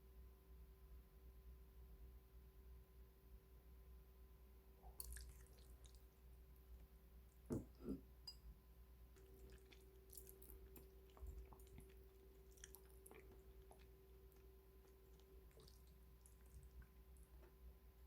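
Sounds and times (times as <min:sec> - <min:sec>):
soft chewing: 0:04.9 - 0:08.0, 0:09.0 - 0:18.0.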